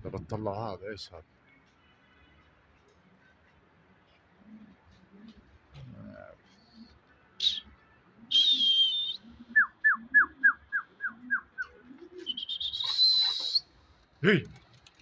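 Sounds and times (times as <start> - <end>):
faint low cooing: 4.5 - 7.0
small bird chirping and whistling: 12.2 - 13.6.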